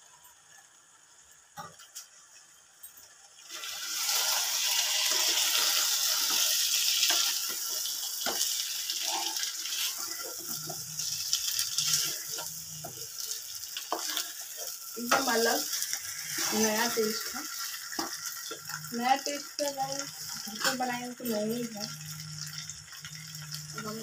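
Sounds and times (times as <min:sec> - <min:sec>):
chicken sizzling in a pan: 0:00.0 - 0:24.0
wooden spatula scraping a pan: 0:11.7 - 0:18.6.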